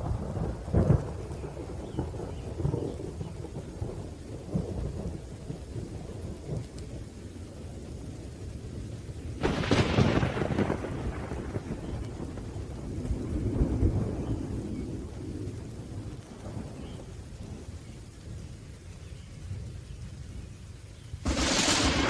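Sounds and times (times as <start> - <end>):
low rolling thunder: 0.0 - 20.4, 21.2 - 22.0
steady rain: 0.0 - 22.0
sharp thunderclap: 9.4 - 14.3, 21.2 - 22.0.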